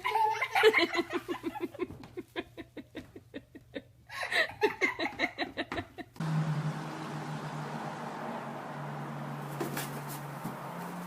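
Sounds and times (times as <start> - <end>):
person laughing hard: 0.0 - 6.2.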